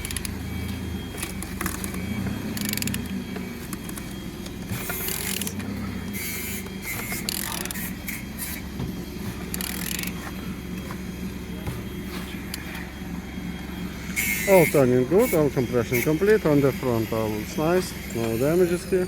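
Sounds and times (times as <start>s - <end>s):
ratchet clicks and rasps: 0.0s - 0.4s, 1.2s - 4.2s, 4.8s - 5.6s, 6.2s - 8.6s, 9.5s - 10.2s.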